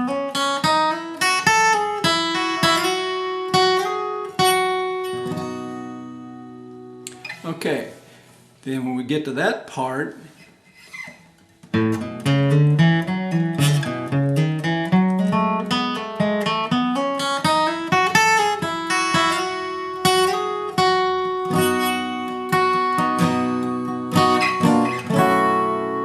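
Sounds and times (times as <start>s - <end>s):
acoustic guitar strummed chords: 0.0s - 8.5s, 11.6s - 26.0s
acoustic guitar single notes: 1.2s - 8.5s.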